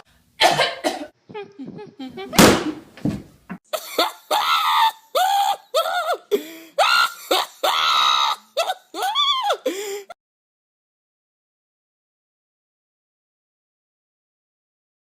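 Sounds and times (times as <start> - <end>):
person screaming: 3.9 - 10.1.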